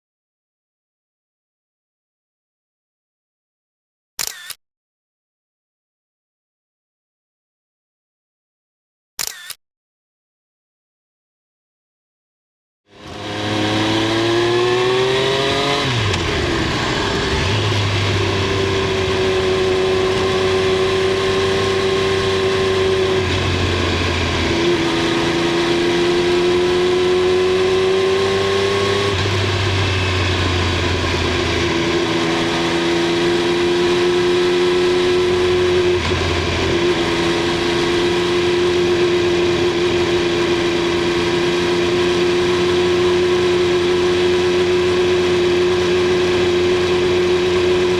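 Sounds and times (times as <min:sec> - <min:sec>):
motorcycle engine revving: 0:12.9 - 0:47.9.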